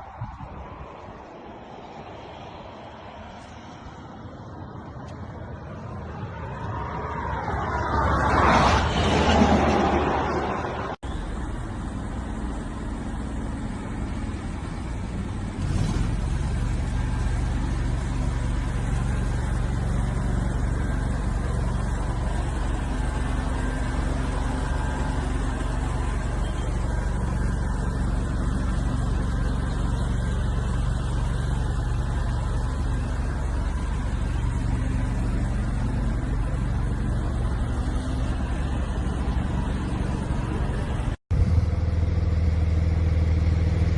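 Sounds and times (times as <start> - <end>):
car engine running: 11.0 - 43.9.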